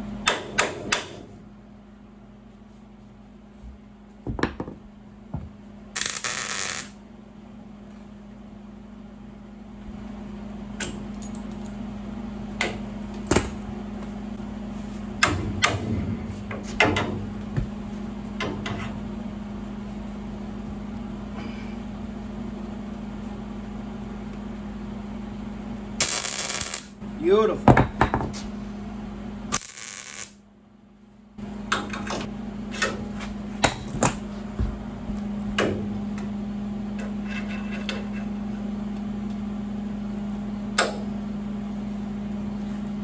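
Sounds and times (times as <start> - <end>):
steady hum: 0.0 - 43.0
steel parts clanking: 31.8 - 34.2.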